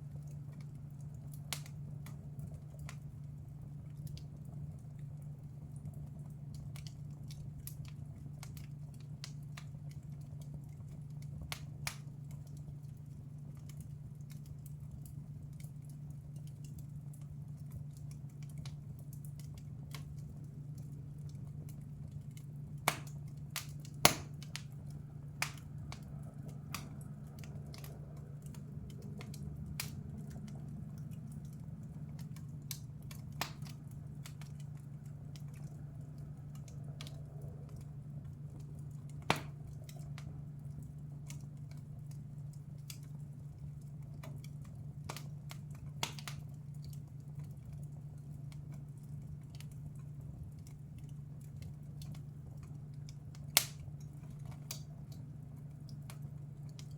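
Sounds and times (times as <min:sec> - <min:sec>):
wood fire crackling and popping: 0:00.0 - 0:56.9
steady low hum: 0:17.0 - 0:47.2.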